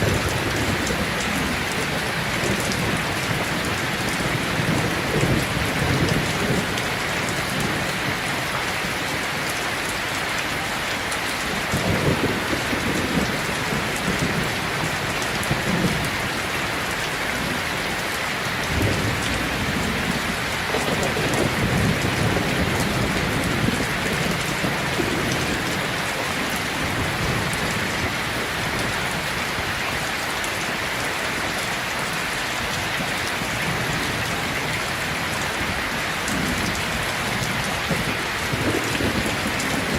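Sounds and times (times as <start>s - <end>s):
distant thunder rumbles: 0.0s - 8.2s, 11.5s - 16.4s, 18.5s - 29.2s
heavy rain pattering: 0.0s - 39.9s.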